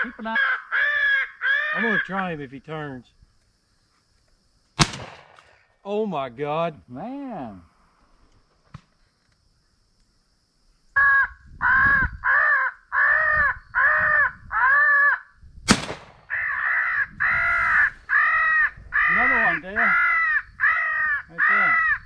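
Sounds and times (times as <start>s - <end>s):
crow cawing: 0.2s - 2.1s, 11.0s - 15.3s, 16.2s - 22.0s.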